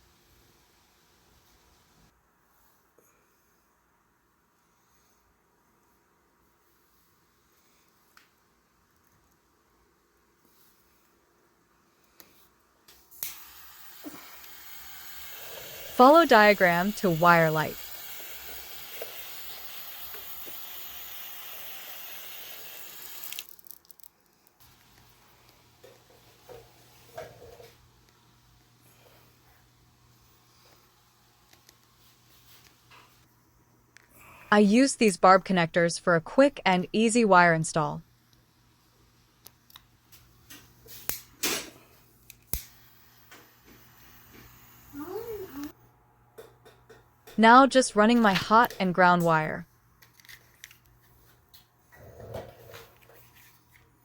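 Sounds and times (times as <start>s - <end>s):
steady hiss: 13.2s - 23.5s
hand tools clicking and snipping wire: 42.3s - 42.7s.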